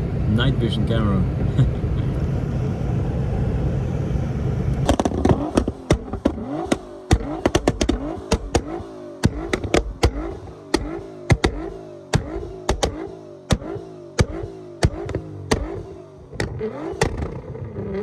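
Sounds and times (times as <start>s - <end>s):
car engine rumbling: 0.0s - 18.0s
throttle blips with exhaust bangs: 0.0s - 18.0s.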